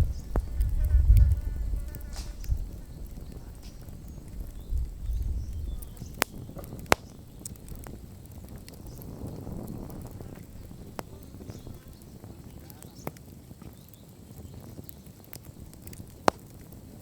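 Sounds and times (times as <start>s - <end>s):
campfire wood crackling: 0.0s - 17.0s
sharp pops from fire: 0.0s - 17.0s.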